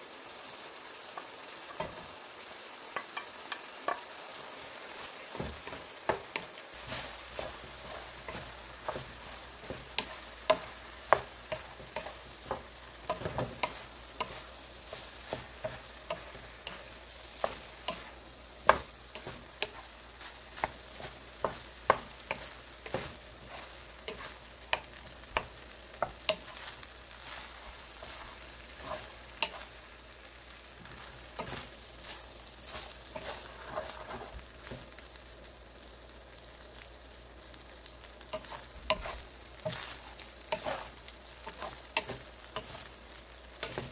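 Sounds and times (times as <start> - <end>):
rice sizzling in a pan: 0.0 - 43.9
utensil clacking against pan: 5.3 - 29.7, 38.3 - 42.9.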